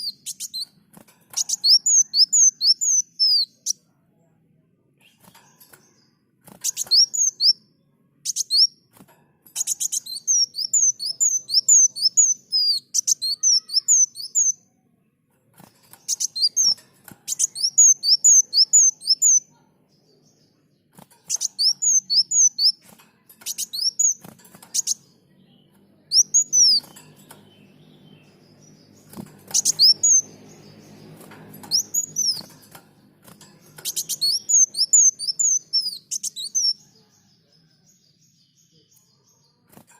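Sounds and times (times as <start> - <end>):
bird chirping rapidly: 0.0 - 3.8, 5.0 - 8.9, 9.6 - 14.6, 15.6 - 19.5, 21.0 - 22.8, 23.4 - 36.9.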